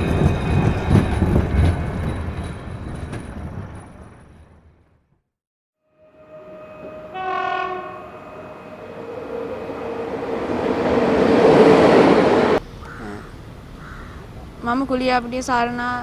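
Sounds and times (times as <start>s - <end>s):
train running noise: 0.0s - 4.9s, 6.1s - 16.0s
train horn blast: 5.8s - 12.6s.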